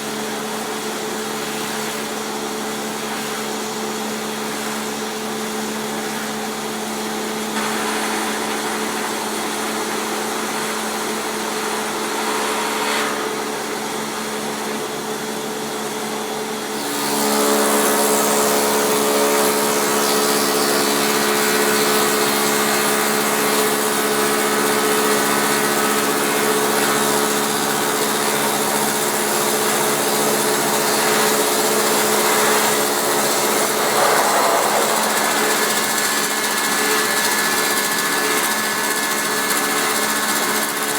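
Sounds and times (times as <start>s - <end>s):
cutter head cutting wood: 29.9s - 39.9s
machine motor hum: 32.9s - 38.4s.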